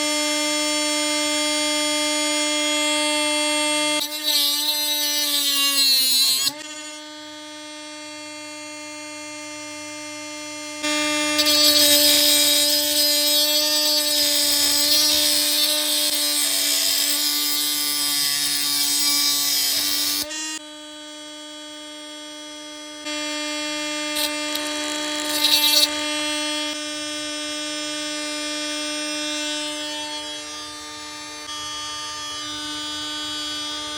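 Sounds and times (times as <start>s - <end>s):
grinder humming: 4.0s - 27.4s, 28.1s - 33.9s
loud grinding hiss: 11.4s - 20.3s, 24.2s - 25.9s.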